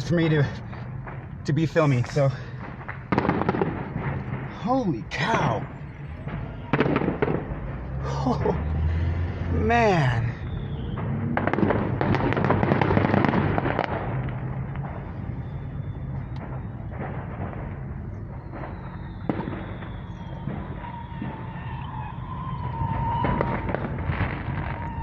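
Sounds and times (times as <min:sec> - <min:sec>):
fireworks crackling pops: 0:00.0 - 0:08.9, 0:09.7 - 0:25.0
sharp firework bang: 0:02.6 - 0:05.5, 0:06.2 - 0:08.8, 0:10.4 - 0:15.1, 0:18.4 - 0:25.0.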